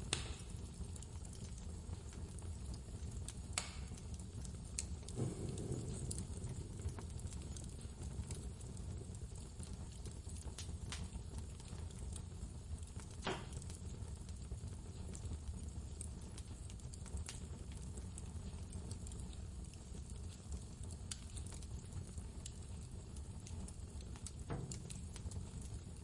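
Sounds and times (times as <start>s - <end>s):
wood fire crackling: 0.0s - 26.0s
blizzard wind rumble: 5.2s - 7.3s.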